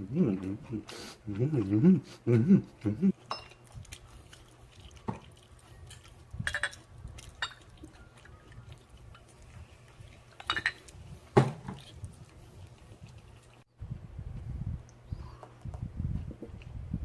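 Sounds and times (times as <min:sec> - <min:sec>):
chewing smacks: 0:02.7 - 0:13.7.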